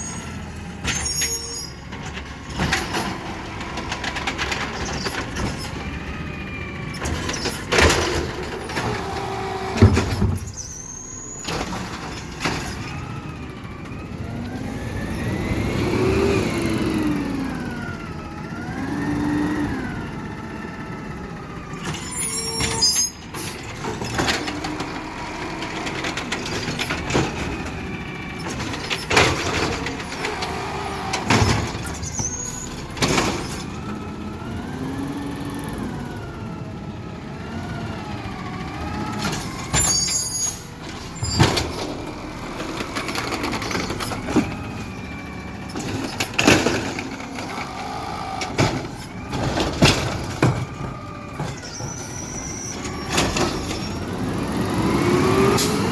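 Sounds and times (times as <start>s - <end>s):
garbage truck mechanical whine: 0.0s - 55.9s.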